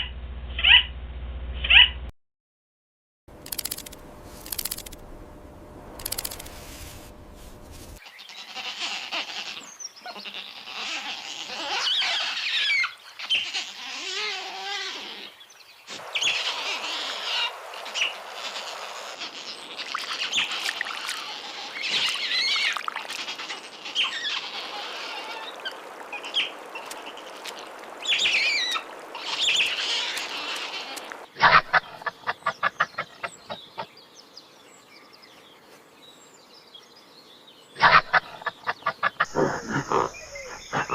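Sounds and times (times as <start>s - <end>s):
sharp clicks: 3.4s - 5.0s, 6.0s - 6.6s
bird-like animal chirps and squawks: 37.8s - 40.9s.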